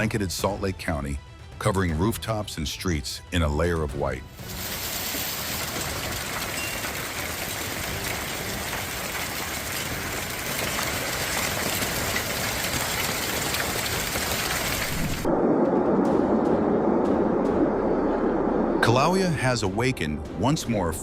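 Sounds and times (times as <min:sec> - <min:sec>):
hail pelting down: 0:04.4 - 0:15.3
low rushing noise: 0:14.8 - 0:21.0.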